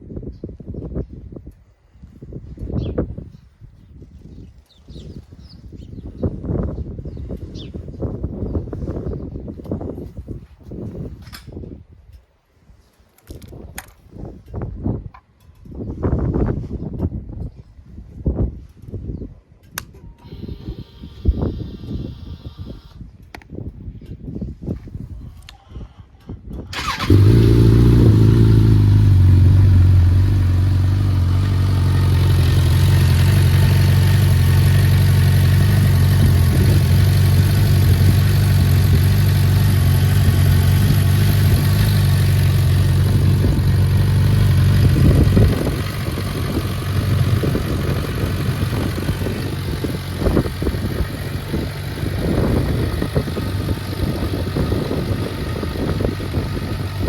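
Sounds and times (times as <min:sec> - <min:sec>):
motorcycle engine starting and idling: 0:20.2 - 0:23.1, 0:26.6 - 0:57.0.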